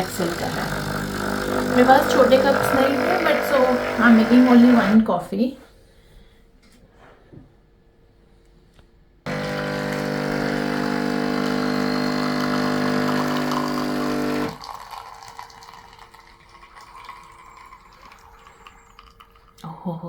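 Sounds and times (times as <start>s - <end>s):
coffee machine pump humming: 0.0s - 5.1s, 9.3s - 19.2s.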